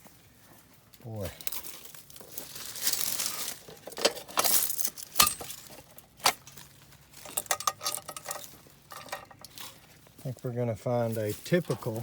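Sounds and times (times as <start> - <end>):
metallic clinks and knocks: 7.2 - 9.6.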